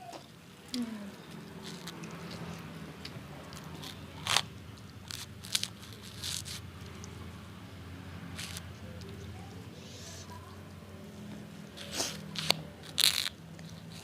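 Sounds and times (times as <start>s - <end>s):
person chewing crunchy food: 0.7s - 7.4s, 8.3s - 8.8s, 11.6s - 14.0s.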